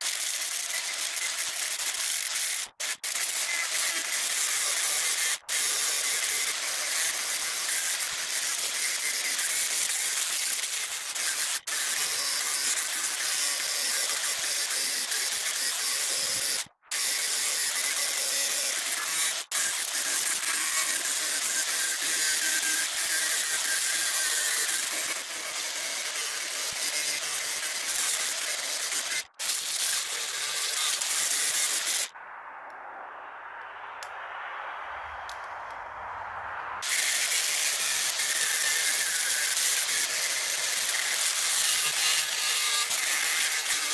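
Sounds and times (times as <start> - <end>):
angle grinder grinding steel: 0.0 - 32.1, 36.8 - 43.9.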